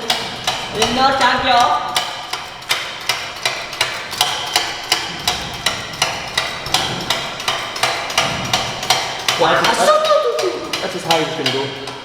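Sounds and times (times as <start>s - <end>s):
sharp metallic knocks ringing: 0.0s - 12.0s.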